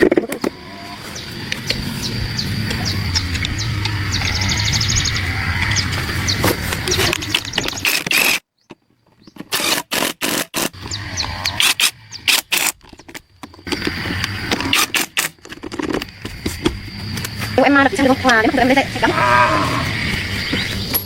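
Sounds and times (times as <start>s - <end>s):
sharp knocks and scraping clatter: 5.6s - 17.6s
low rumble: 18.6s - 20.8s.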